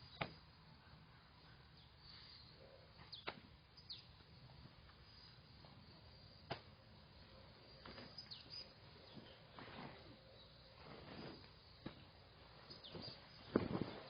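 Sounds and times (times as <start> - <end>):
faint bird chirps: 0.0 - 4.2, 7.2 - 11.8, 12.6 - 14.0.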